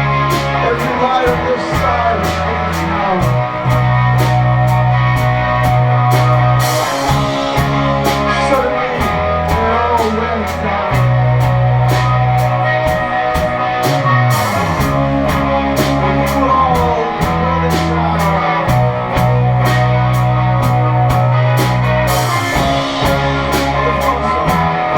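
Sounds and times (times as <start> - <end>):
drums and cymbals: 0.0 - 24.9
electric guitars: 0.0 - 24.9
long held bass notes: 0.0 - 24.9.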